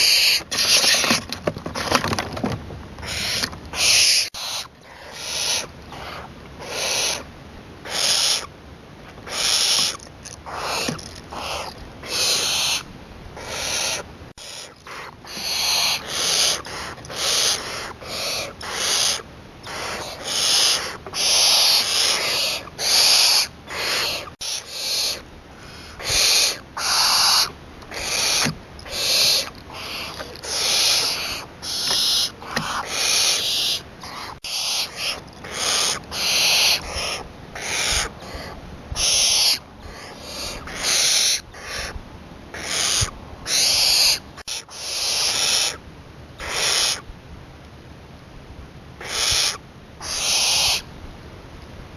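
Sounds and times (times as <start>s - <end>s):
owl hissing screeches: 0.0s - 1.2s, 3.0s - 8.5s, 9.2s - 45.8s, 46.4s - 47.0s, 49.0s - 50.9s.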